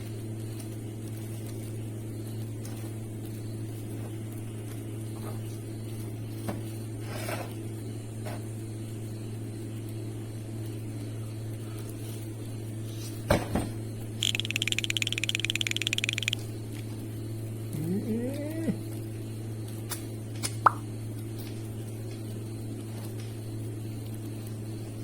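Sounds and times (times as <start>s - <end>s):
low mechanical hum: 0.0s - 25.0s
faint clicks: 14.2s - 16.4s.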